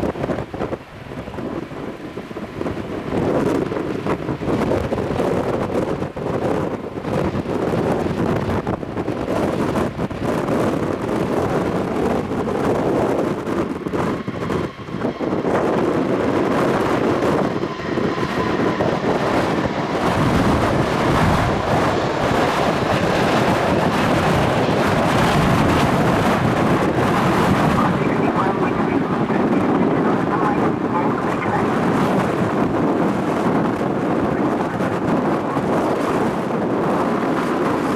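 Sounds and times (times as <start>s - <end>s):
jet engines at takeoff: 0.0s - 37.9s
wind buffeting microphone: 0.0s - 37.9s.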